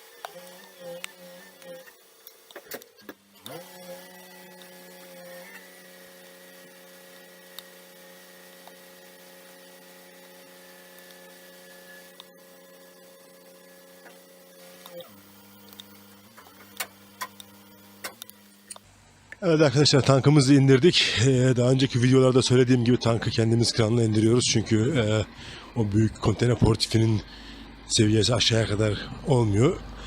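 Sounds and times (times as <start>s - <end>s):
truck diesel engine humming: 20.9s - 30.0s.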